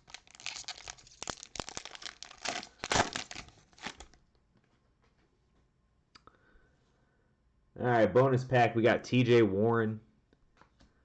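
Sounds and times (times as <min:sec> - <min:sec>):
cellophane wrapper tearing and crinkling: 0:00.0 - 0:04.2.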